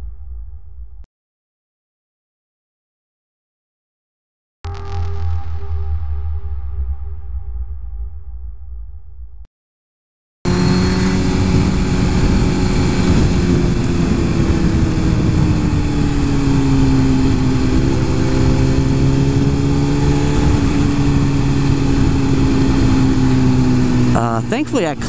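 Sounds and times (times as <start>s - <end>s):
music: 4.7s - 8.7s
heavy wind noise: 10.5s - 25.0s
motorcycle engine cruising: 10.5s - 25.0s.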